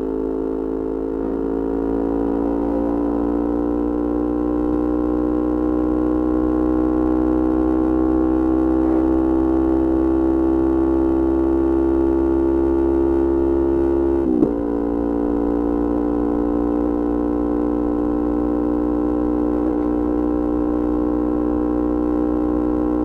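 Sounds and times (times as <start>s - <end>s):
motorcycle engine at steady revs: 0.0s - 23.0s.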